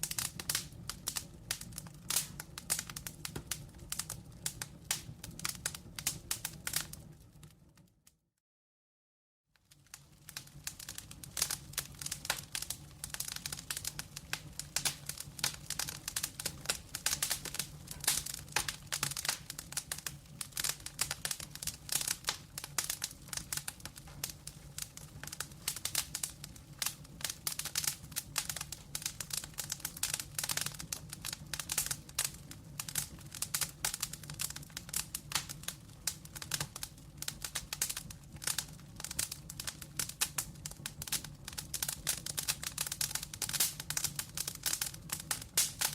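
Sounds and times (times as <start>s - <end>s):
wood fire crackling: 0.0s - 8.1s, 9.6s - 45.9s.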